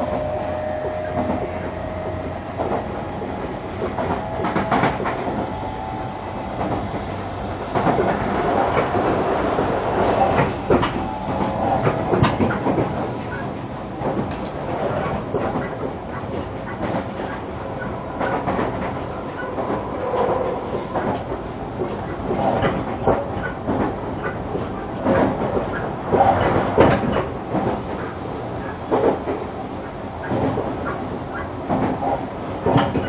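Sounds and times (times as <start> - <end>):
wheels rumbling on rail: 0.0 - 33.0
clacks and knocks over track: 7.7 - 13.4, 21.0 - 28.0.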